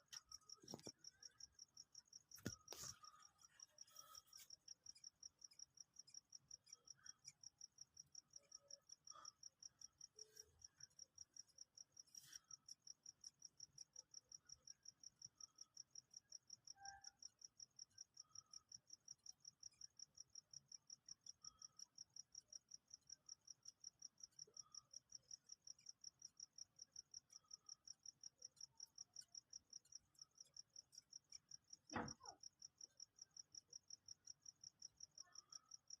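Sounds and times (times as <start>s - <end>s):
cricket chirping: 0.0s - 36.0s
soft thump: 31.9s - 32.2s.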